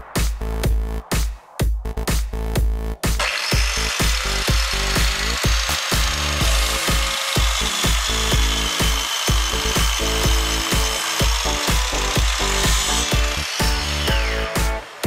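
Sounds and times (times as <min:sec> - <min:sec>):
background music with beat: 0:00.0 - 0:15.0
miter saw cutting wood: 0:03.2 - 0:15.0.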